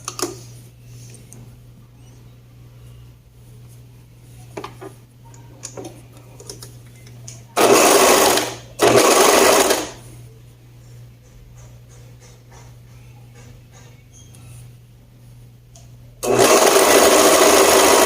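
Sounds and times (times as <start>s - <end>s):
sewing machine running: 7.6s - 10.0s, 16.2s - 18.0s.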